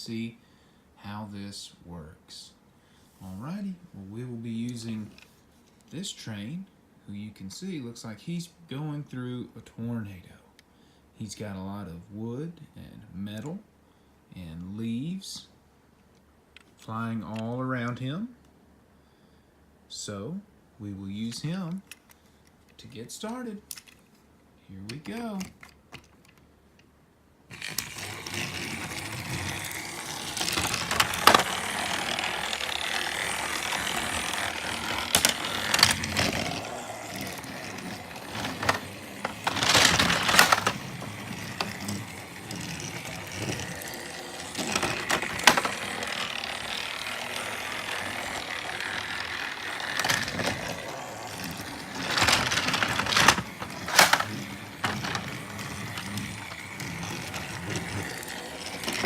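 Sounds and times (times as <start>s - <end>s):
plastic clatter: 27.5s - 59.0s
toy train motor whirring: 27.5s - 59.0s.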